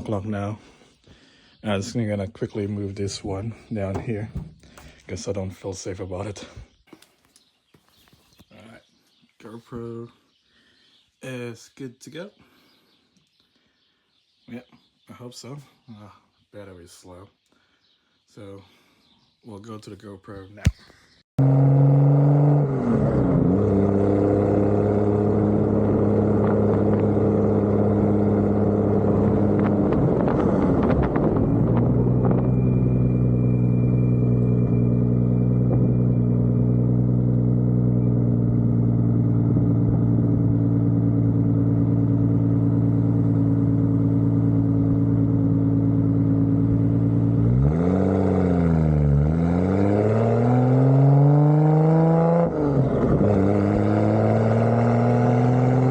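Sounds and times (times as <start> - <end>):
car engine accelerating: 21.4 - 55.9.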